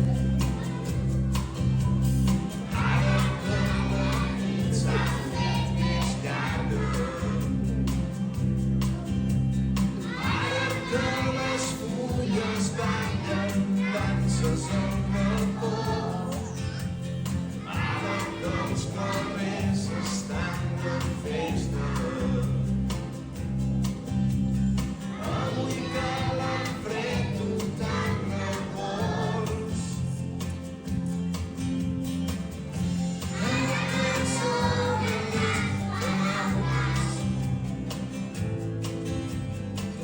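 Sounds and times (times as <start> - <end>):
children's choir singing: 0.0 - 8.1, 9.8 - 23.1, 25.0 - 30.6, 33.2 - 37.7.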